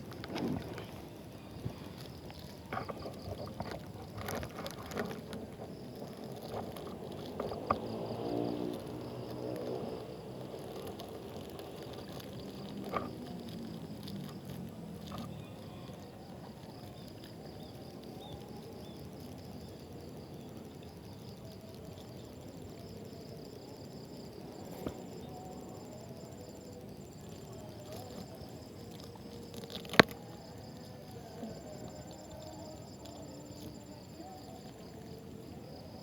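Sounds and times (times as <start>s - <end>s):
kayak paddling on water: 0.0s - 18.1s
insect chirping: 0.0s - 36.0s
passing engine hum: 5.2s - 15.2s.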